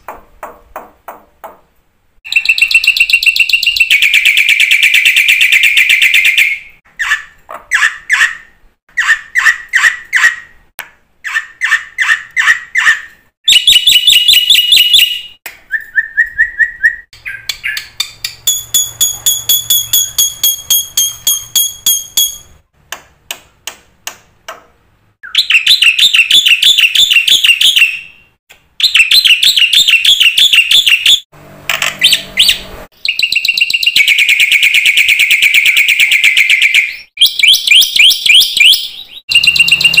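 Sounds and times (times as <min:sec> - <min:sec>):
starling singing: 0:16.0 - 0:22.5, 0:32.0 - 0:40.0.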